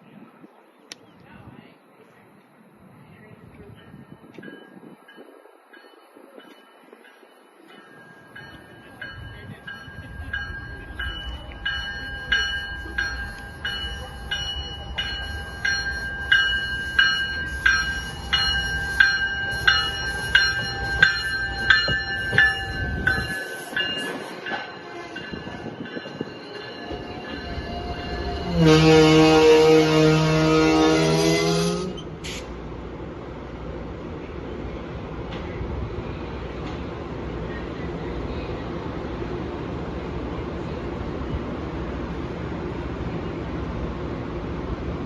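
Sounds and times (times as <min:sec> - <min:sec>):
train passing with low rumble: 0:00.0 - 0:45.0
train air horn: 0:28.0 - 0:32.5.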